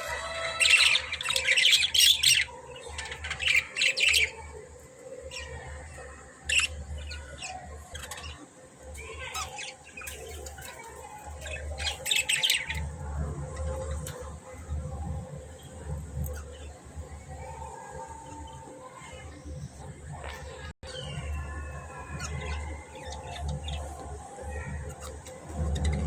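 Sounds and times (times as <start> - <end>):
budgerigars chirping and chattering: 0.0 - 4.6, 5.3 - 8.4, 9.0 - 13.0, 20.9 - 26.0
faint low rumble: 13.0 - 26.0.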